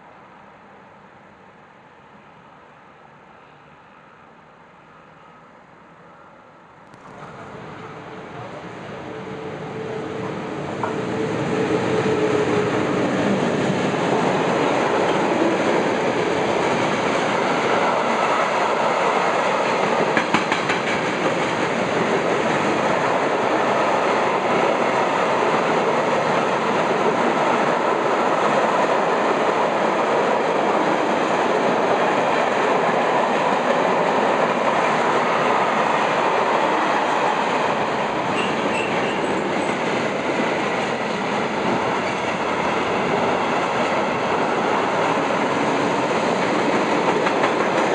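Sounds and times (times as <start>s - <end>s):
train wheels rumbling on track: 6.9s - 47.9s
rail-joint clicks: 19.6s - 21.8s.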